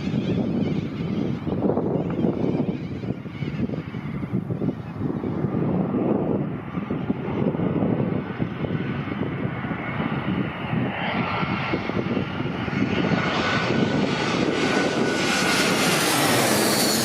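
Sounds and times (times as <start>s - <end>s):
jet engines roaring: 0.0s - 17.0s
wind buffeting microphone: 0.0s - 17.0s.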